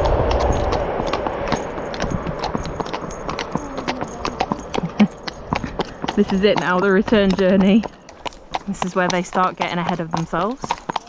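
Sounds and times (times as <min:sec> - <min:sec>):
passing vehicle rumble: 0:00.0 - 0:07.8
horse hooves clip-clopping: 0:00.0 - 0:11.0.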